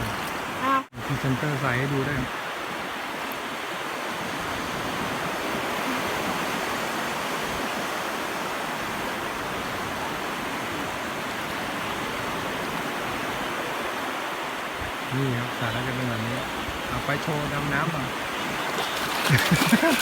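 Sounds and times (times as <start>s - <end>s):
sea waves washing on beach: 0.0s - 20.0s.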